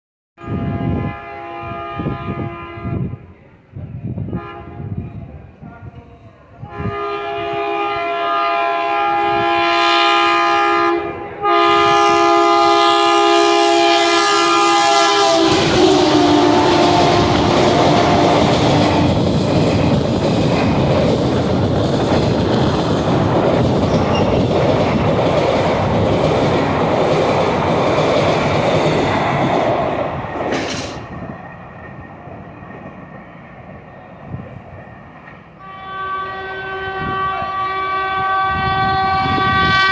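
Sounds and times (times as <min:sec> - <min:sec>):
train horn blasts: 0:00.4 - 0:03.3, 0:04.2 - 0:05.0, 0:06.6 - 0:19.2, 0:35.6 - 0:39.9
train passing at speed: 0:00.4 - 0:39.9.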